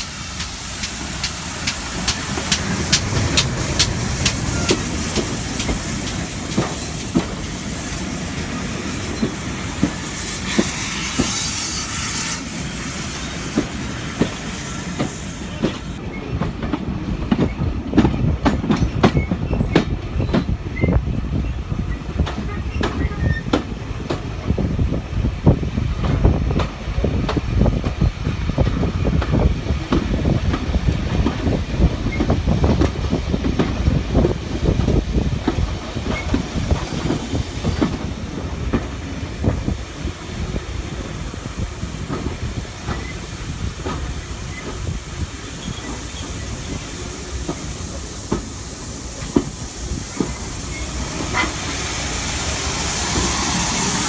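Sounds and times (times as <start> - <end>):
steam hissing: 0.0 - 16.0, 33.7 - 54.0
train wheels and coaches rattling: 0.0 - 54.0.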